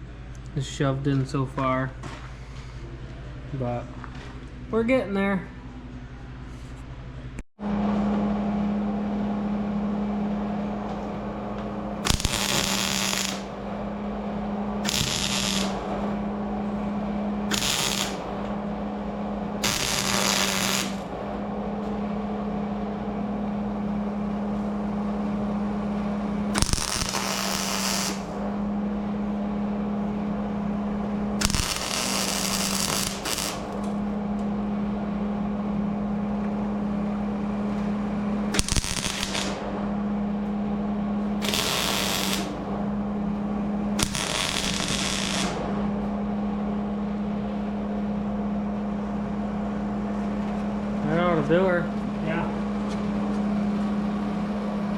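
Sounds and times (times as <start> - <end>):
steady low hum: 0.0 - 54.9
power tool bursts: 12.0 - 13.6, 14.8 - 16.1, 17.5 - 18.4, 19.6 - 21.1, 26.6 - 28.4, 31.4 - 33.8, 38.6 - 39.6, 41.4 - 42.6, 44.0 - 45.6.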